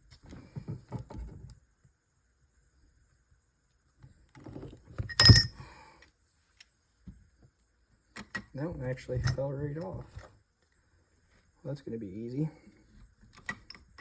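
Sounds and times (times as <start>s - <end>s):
metal parts clattering: 5.1s - 5.6s
ringing metal clank: 5.1s - 5.6s.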